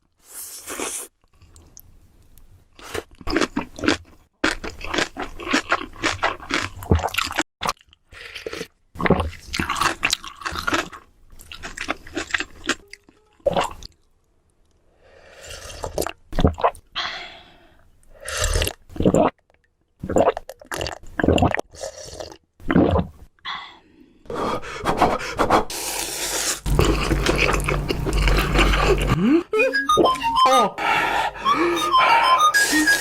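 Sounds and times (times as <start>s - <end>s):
wet squishy chewing: 26.7s - 29.2s.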